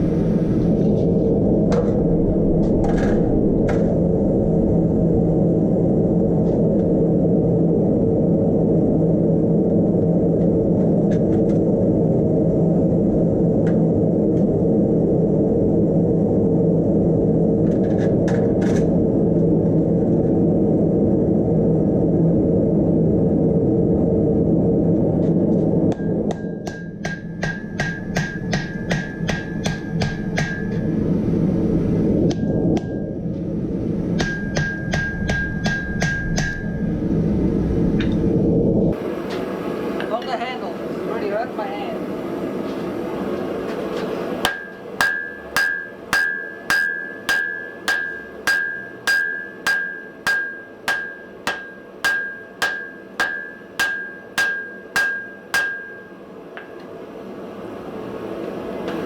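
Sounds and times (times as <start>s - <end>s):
forge roaring: 0.0s - 26.8s, 35.9s - 59.0s
steady low rumble: 0.0s - 59.0s
hammer ringing on steel: 34.2s - 36.6s, 44.5s - 56.7s.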